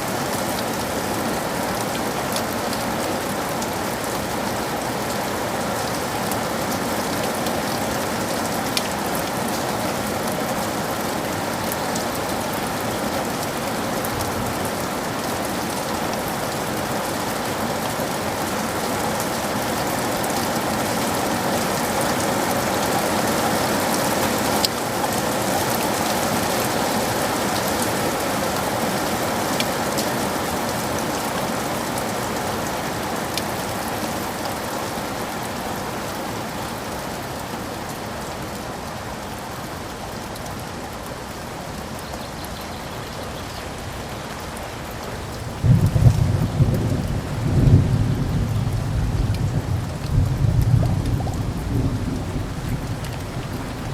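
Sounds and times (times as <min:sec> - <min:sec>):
steady rain hiss: 0:00.0 - 0:53.9
rain drop ticks: 0:45.2 - 0:53.9.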